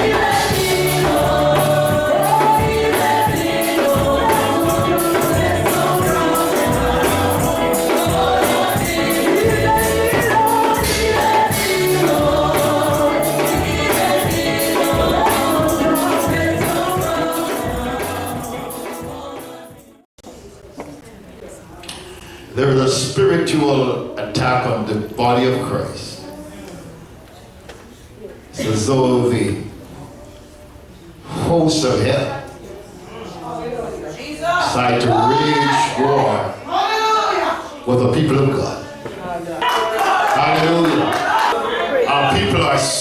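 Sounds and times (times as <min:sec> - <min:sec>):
band with bass and percussion: 0:00.0 - 0:19.7
choir singing gospel: 0:00.0 - 0:20.1, 0:33.6 - 0:43.0.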